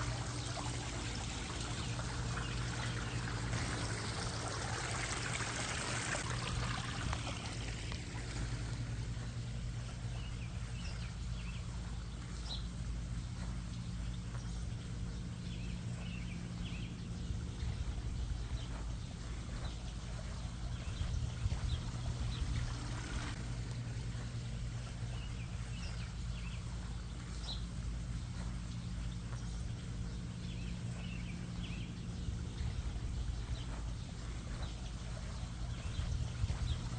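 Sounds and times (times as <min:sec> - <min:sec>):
waterfall and fountain splashing: 0:00.0 - 0:08.8, 0:22.8 - 0:23.4
water splashing and trickling: 0:00.0 - 0:12.3, 0:17.8 - 0:31.8
birds chirping: 0:00.0 - 0:36.9
low hum: 0:00.0 - 0:36.9
low rumble: 0:06.2 - 0:36.9.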